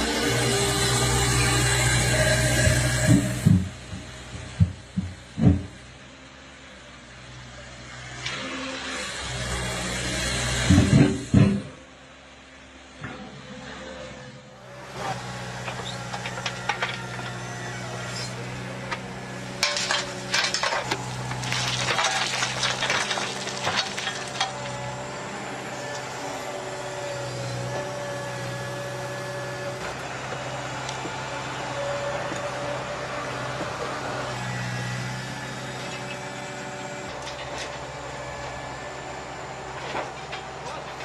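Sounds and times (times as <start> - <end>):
excavator engine running: 0.0 - 7.3, 14.5 - 41.0
metallic clanks and scrapes: 15.6 - 17.4, 19.6 - 24.9.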